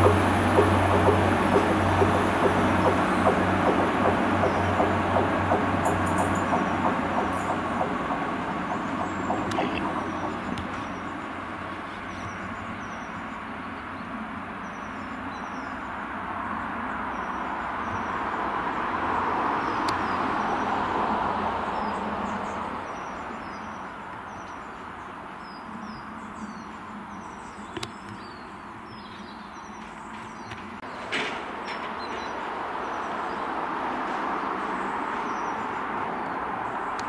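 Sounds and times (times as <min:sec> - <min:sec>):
small birds chirping: 0:00.0 - 0:15.9, 0:21.8 - 0:33.6
diesel train engine and wheels: 0:00.0 - 0:37.0.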